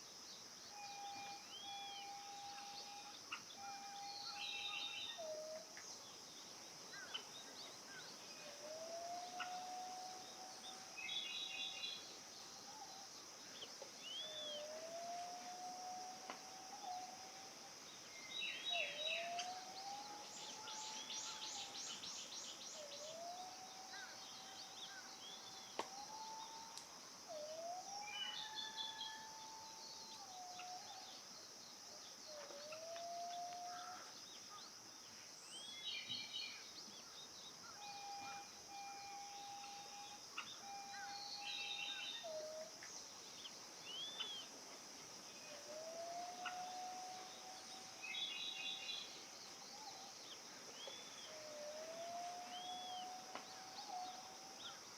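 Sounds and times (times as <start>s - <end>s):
steady high hiss: 0.0s - 54.9s
bird low rising whistle: 0.7s - 5.6s, 8.4s - 12.1s, 14.0s - 17.5s, 18.1s - 31.2s, 32.3s - 34.0s, 37.6s - 42.8s, 45.4s - 50.2s, 50.8s - 54.8s.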